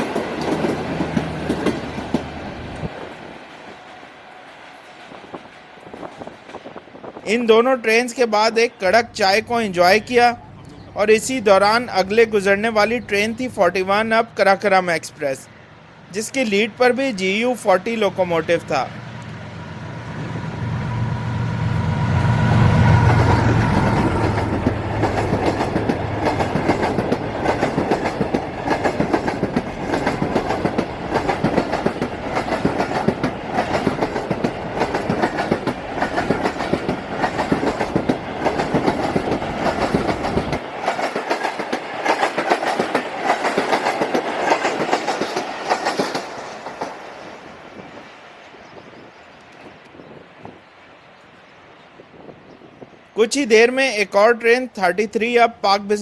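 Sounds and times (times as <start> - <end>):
train wheels clattering: 0.0 - 6.8, 23.0 - 47.2
locomotive engine drone: 18.1 - 40.8.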